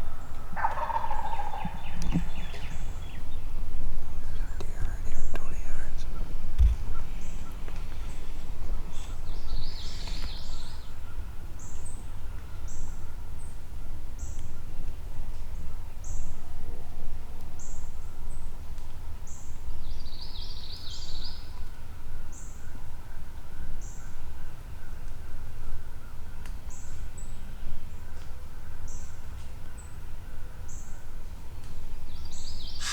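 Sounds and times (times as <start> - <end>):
bird chattering song: 0.6 - 3.6.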